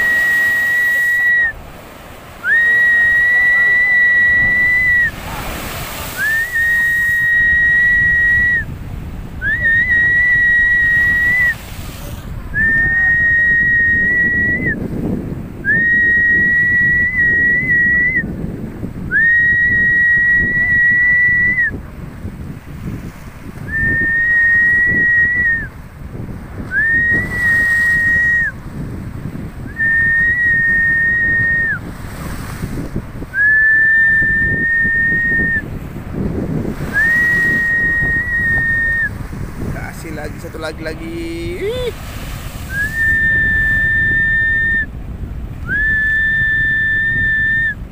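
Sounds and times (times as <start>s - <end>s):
high steady whistling tone: 0.0s - 1.6s, 2.4s - 5.2s, 6.2s - 8.7s, 9.4s - 11.6s, 12.5s - 14.8s, 15.6s - 18.3s, 19.1s - 21.8s, 23.6s - 25.7s, 26.7s - 28.6s, 29.7s - 31.9s, 33.3s - 35.8s, 36.8s - 39.2s, 42.7s - 45.0s, 45.6s - 47.8s
heavy surf: 0.0s - 47.9s
strong wind: 0.0s - 47.9s.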